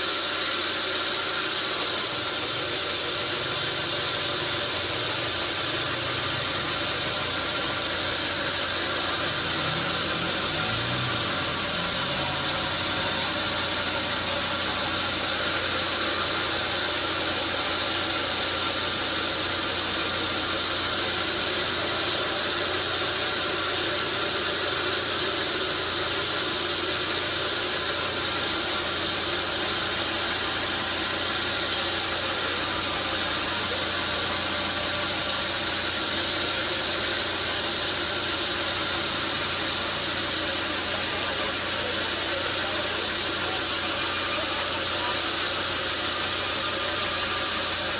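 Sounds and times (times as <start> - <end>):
saw hissing: 0.0 - 47.9.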